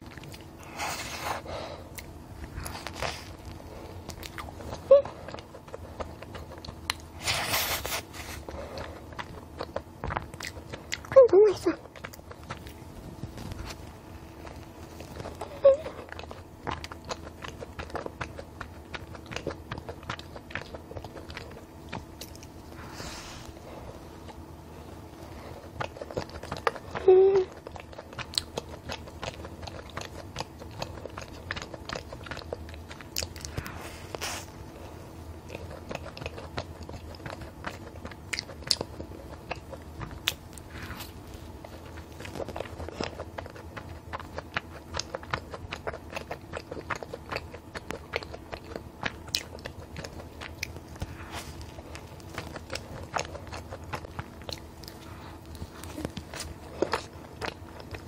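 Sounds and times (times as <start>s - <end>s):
person chewing soft food: 0.0s - 58.0s
person humming: 27.0s - 27.5s.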